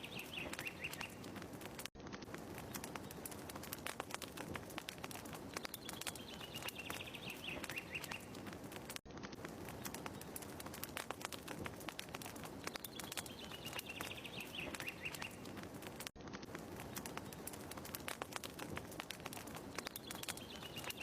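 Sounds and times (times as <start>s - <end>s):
bird chirps: 0.0s - 1.2s, 5.5s - 8.4s, 12.6s - 15.5s, 19.8s - 21.0s
fire crackling: 0.0s - 21.0s.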